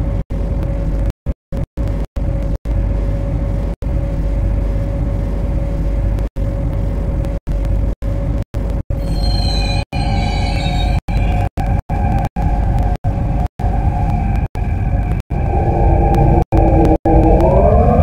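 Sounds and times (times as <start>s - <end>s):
electric train running: 9.0s - 18.0s.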